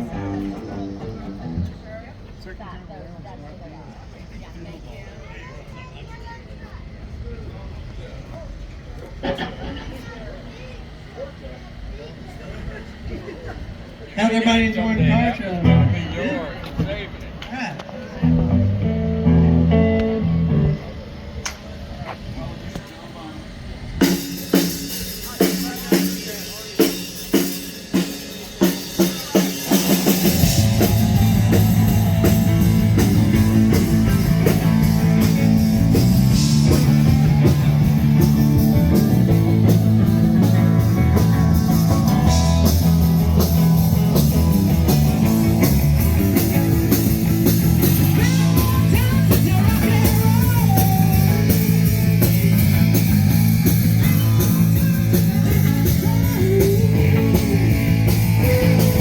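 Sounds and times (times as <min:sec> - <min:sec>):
rock band with electric guitar: 0:00.0 - 0:02.6, 0:05.2 - 0:59.0
drum hits: 0:24.1 - 0:59.0.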